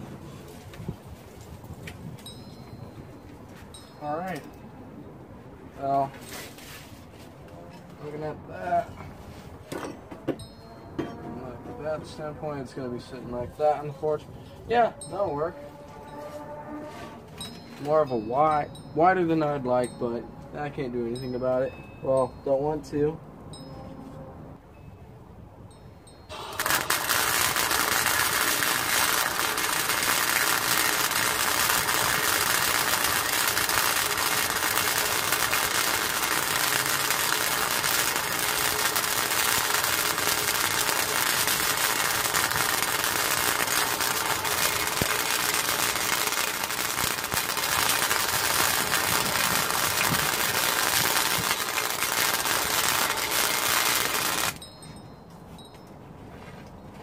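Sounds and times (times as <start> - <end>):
arc welder crackling buzz: 26.3 - 54.6.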